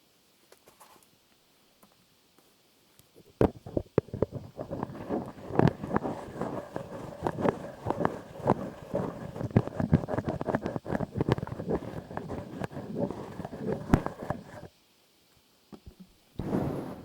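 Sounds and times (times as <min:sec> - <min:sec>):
crackling and rustling on microphone: 0:00.3 - 0:17.0.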